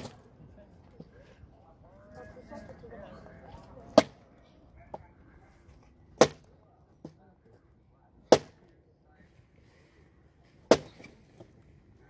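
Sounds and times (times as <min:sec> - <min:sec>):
axe chopping firewood: 0:06.2 - 0:06.5, 0:08.3 - 0:08.6, 0:10.7 - 0:11.1.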